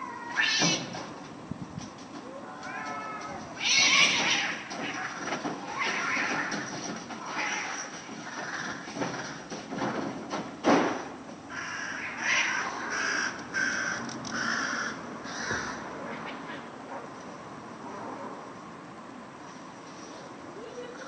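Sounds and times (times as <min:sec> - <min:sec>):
cats yowling and hissing: 0:00.0 - 0:01.0, 0:02.2 - 0:09.4, 0:11.5 - 0:13.9.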